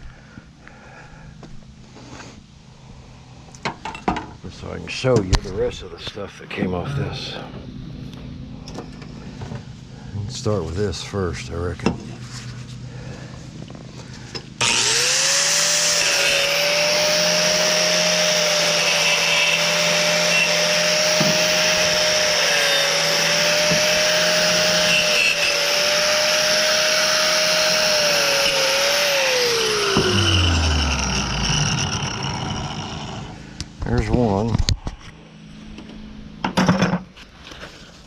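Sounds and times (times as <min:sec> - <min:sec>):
electric power tool running: 0:13.7 - 0:33.8.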